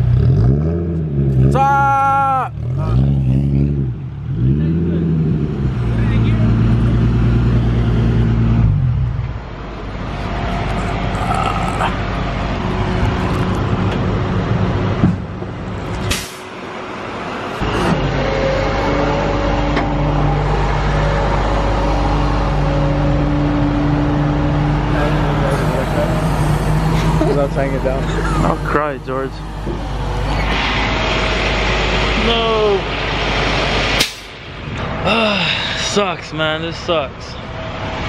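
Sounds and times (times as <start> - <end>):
truck engine running: 2.5 - 38.0
sharp knock: 34.0 - 34.4.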